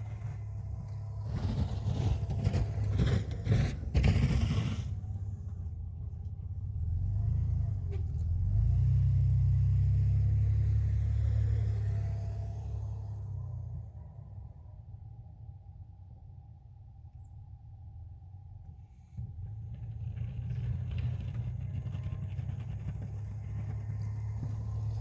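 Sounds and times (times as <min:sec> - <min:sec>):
pickup truck engine running: 0:00.0 - 0:13.8, 0:19.4 - 0:25.0
plow scraping and rattling: 0:00.0 - 0:13.9, 0:19.2 - 0:25.0.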